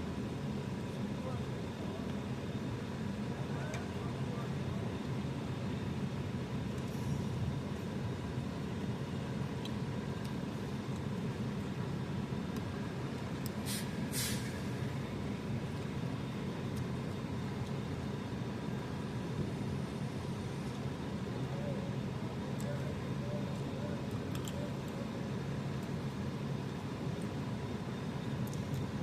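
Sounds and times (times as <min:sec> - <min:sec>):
air release hisses: 0:13.6 - 0:14.6.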